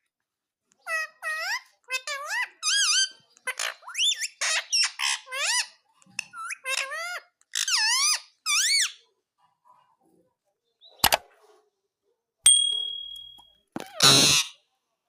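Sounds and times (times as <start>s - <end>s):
parakeet squeaky calls: 0.8s - 9.0s, 13.8s - 14.6s.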